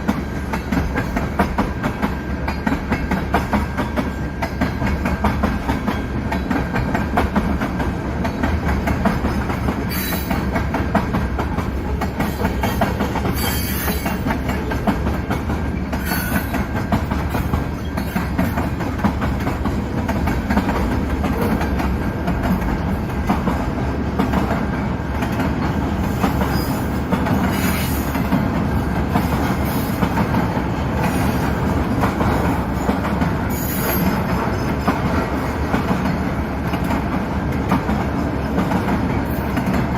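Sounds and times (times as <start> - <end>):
train wheels clattering on rails: 0.0 - 39.9
high wheel squeals: 13.4 - 14.2.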